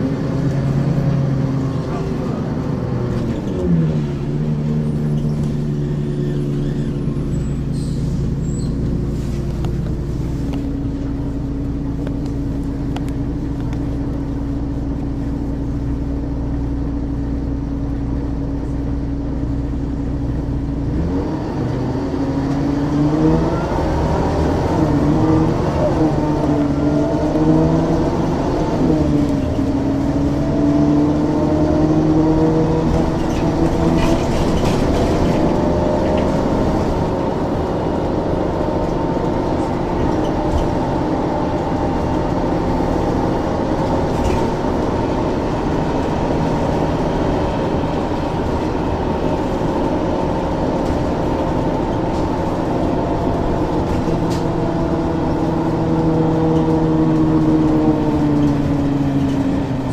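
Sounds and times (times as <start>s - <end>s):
bus engine humming: 0.0s - 59.9s.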